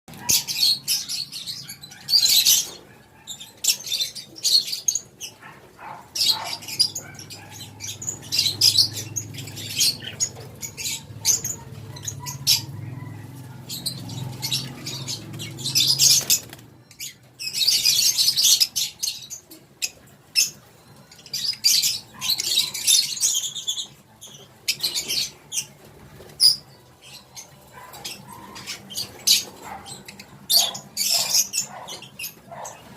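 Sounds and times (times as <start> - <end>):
lovebirds chattering: 0.1 - 32.9.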